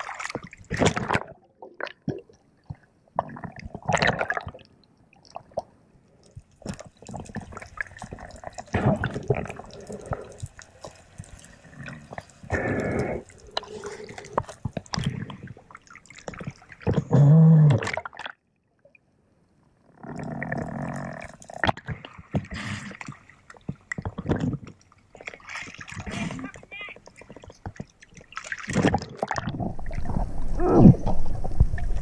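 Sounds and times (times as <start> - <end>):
water moving and bubbling: 0.0 - 32.0
underwater clicks and knocks: 27.0 - 32.0.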